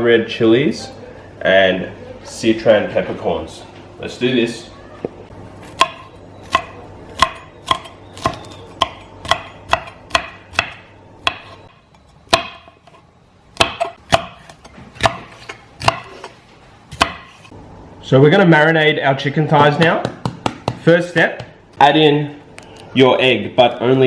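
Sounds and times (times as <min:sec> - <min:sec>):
knife chopping on cutting board: 0:05.8 - 0:11.6, 0:12.3 - 0:13.0, 0:13.6 - 0:16.3, 0:16.9 - 0:17.5.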